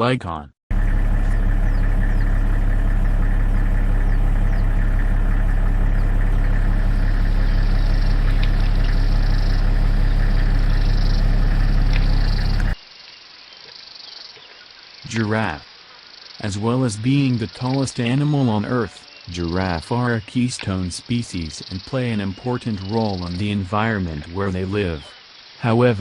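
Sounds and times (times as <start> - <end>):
engine idling: 0.7 - 12.8.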